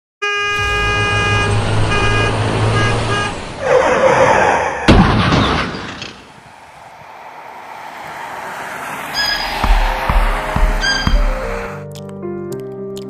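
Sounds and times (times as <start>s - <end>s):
truck horn: 0.2s - 4.1s, 10.7s - 11.8s
sharp bang: 0.5s - 3.3s
engine rumble: 0.5s - 4.3s, 6.1s - 11.8s
rushing noise: 0.5s - 4.9s, 6.1s - 11.8s.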